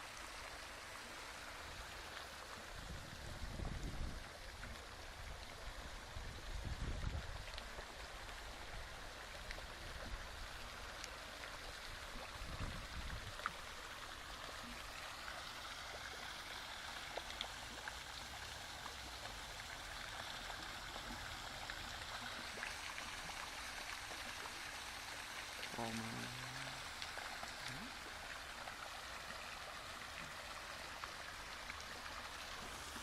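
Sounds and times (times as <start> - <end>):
faint drips and splashes: 0.0 - 33.0
running water rushing: 0.0 - 33.0.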